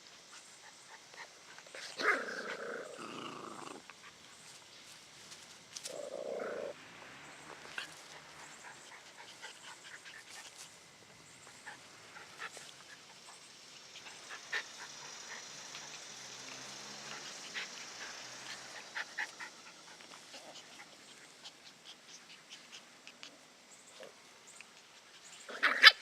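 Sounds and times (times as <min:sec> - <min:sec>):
puppy growling: 0:01.1 - 0:04.0, 0:05.9 - 0:06.8, 0:25.5 - 0:26.0.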